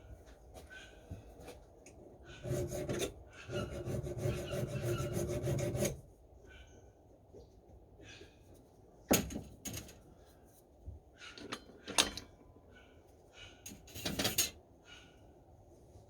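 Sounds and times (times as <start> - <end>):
file scraping steel maul head: 2.3 - 6.0.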